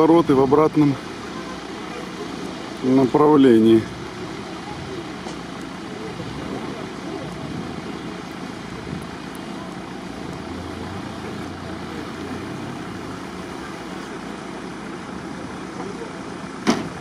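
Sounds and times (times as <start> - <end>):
car engine running: 0.0 - 17.0
outdoor noise: 0.0 - 17.0
sharp knock: 16.6 - 17.0.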